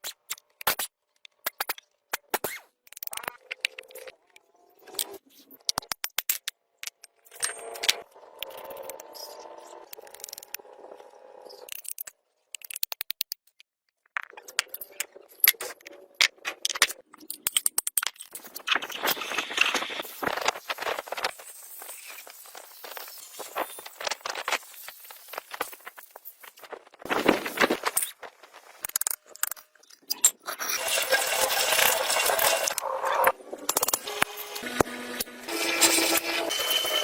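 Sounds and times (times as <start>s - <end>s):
metal tools clinking and scraping: 6.8s - 9.3s, 35.5s - 37.0s.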